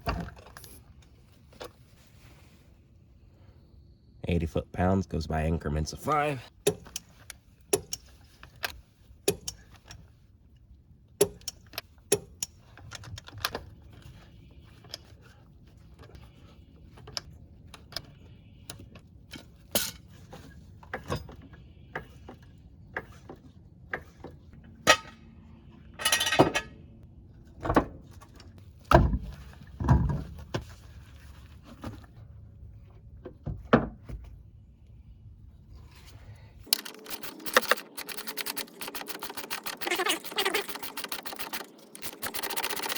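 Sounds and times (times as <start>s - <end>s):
hand tools clanking on metal: 25.9s - 26.8s.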